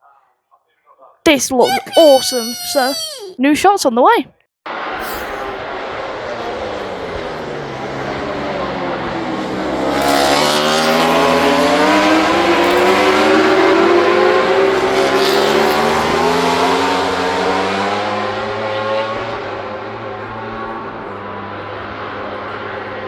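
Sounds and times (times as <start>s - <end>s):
steady low drone: 4.7s - 15.1s
racing motorcycle engine accelerating: 4.7s - 23.0s.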